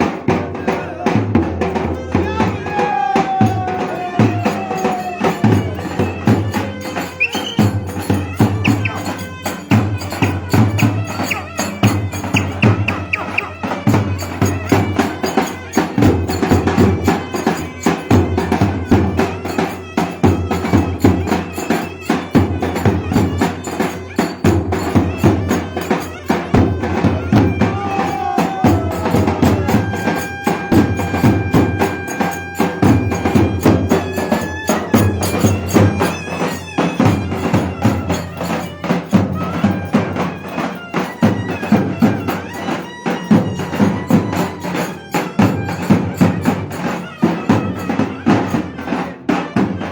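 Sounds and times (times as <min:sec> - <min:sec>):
driving drumbeat: 0:00.0 - 0:49.9
reedy pipe melody: 0:02.0 - 0:49.9.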